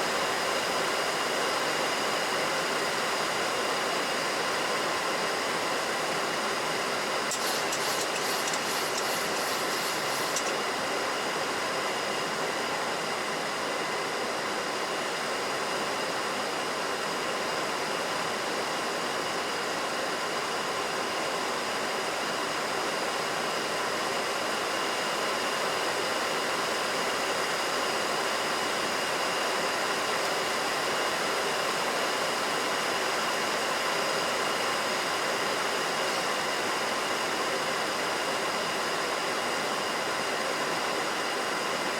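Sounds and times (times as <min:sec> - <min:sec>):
cockpit airflow and engine noise: 0:00.0 - 0:41.9
rapid high ticks: 0:07.3 - 0:10.6.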